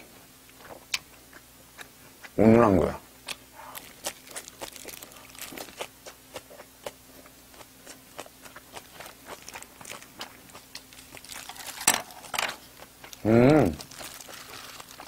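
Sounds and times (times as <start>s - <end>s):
wet chewing crunches: 3.2s - 15.0s.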